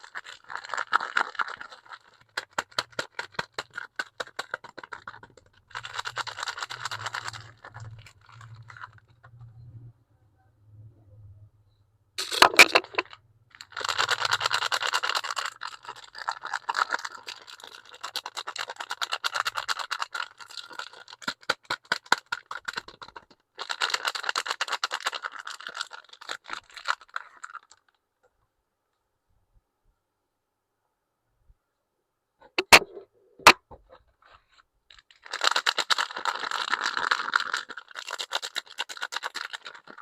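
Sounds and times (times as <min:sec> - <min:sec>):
wrapping crinkling: 0:00.0 - 0:09.2, 0:12.2 - 0:28.0, 0:34.4 - 0:40.0.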